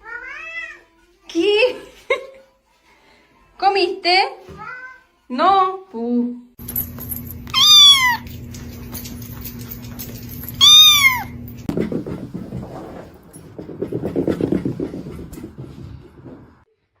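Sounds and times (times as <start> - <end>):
cat meowing: 7.5 - 8.3, 10.6 - 11.4.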